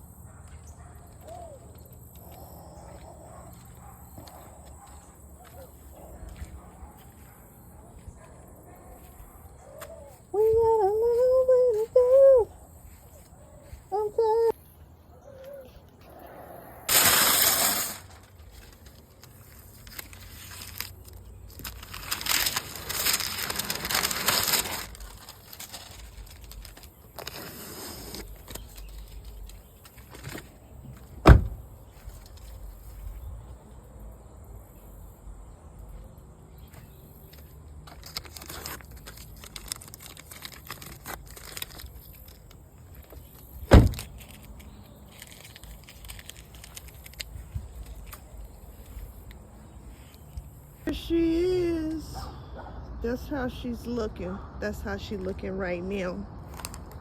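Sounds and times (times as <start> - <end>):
spray paint can hissing: 16.9 - 18.1.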